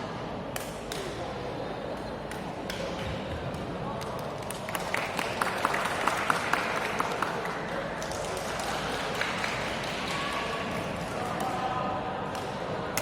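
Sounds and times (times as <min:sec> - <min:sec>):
murmur of voices: 0:00.0 - 0:13.0.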